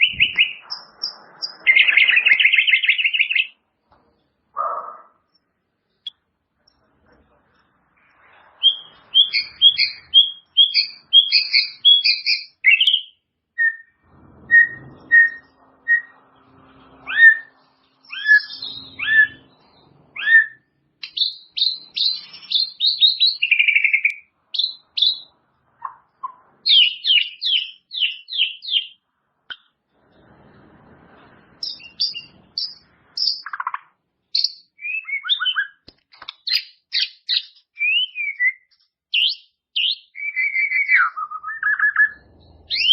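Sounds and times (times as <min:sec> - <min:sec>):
bird chattering trills: 0:00.0 - 0:03.5, 0:41.9 - 0:42.9
bird singing whistled notes: 0:00.0 - 0:03.6, 0:08.6 - 0:16.2, 0:17.0 - 0:29.0, 0:31.6 - 0:35.8, 0:36.4 - 0:42.9.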